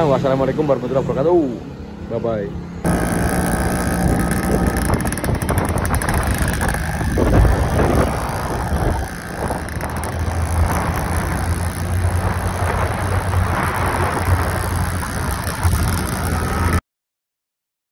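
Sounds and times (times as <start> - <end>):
two-stroke motorcycle engine: 2.8 - 16.8
wind buffeting microphone: 2.9 - 16.1.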